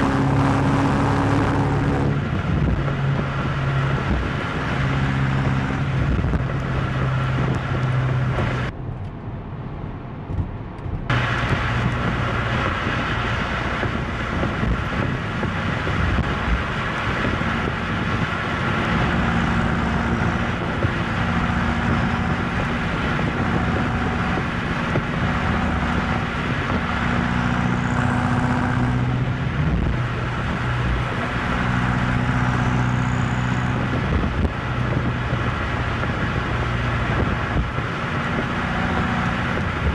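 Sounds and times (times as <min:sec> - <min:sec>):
car engine cruising: 0:00.0 - 0:39.9
tyre and road noise: 0:00.0 - 0:39.9.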